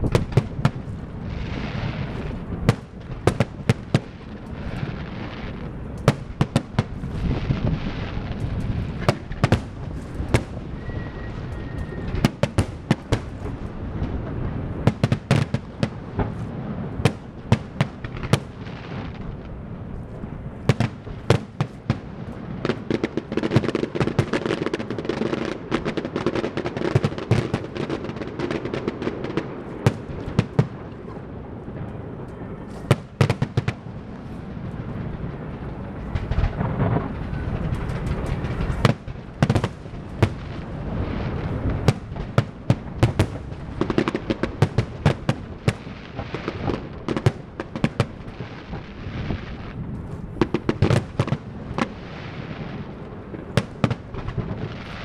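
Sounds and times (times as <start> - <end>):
fireworks bangs and cracks: 0.0 - 55.0
steady low rumble: 33.8 - 43.9.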